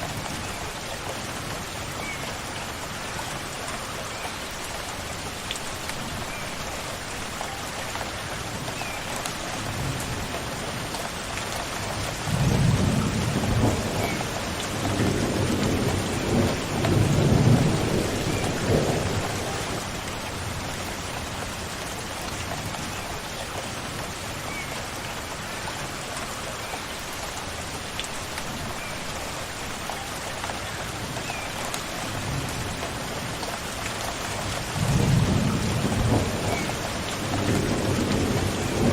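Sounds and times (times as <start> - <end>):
steady rainfall: 0.0 - 38.9
rumble of thunder: 12.3 - 20.0, 34.6 - 38.9.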